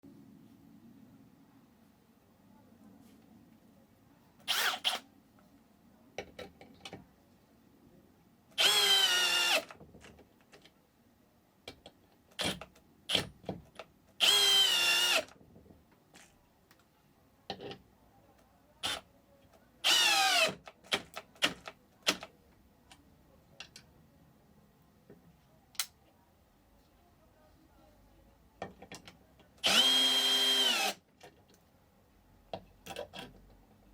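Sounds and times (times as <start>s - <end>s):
cordless drill motor whine: 8.6s - 9.7s, 14.2s - 15.3s, 19.9s - 20.5s, 29.6s - 31.0s.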